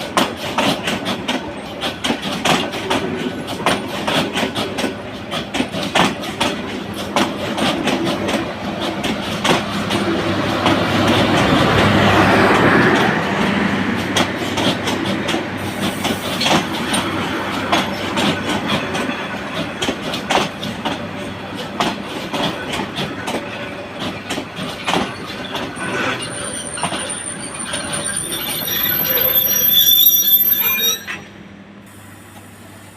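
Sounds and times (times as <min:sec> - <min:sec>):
train wheels clacking over rail joints: 0:00.0 - 0:30.4
heavy train rumble: 0:00.0 - 0:32.9
train wheels squealing: 0:24.8 - 0:31.4.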